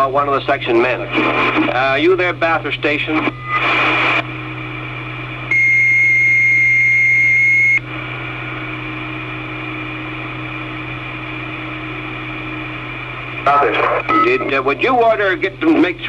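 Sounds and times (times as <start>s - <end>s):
radio channel hum and hiss: 0.0s - 16.0s
high-pitched radio tone: 0.7s - 1.9s, 3.0s - 4.2s, 13.4s - 15.1s.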